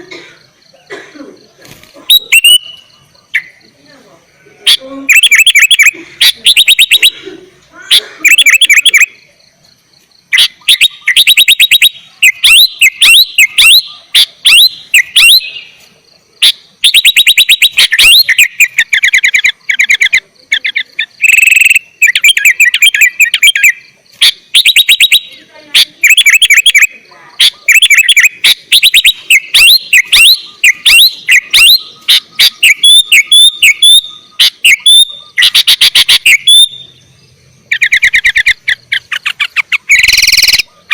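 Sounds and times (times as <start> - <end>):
bird chattering and whistling: 0.0 - 40.9.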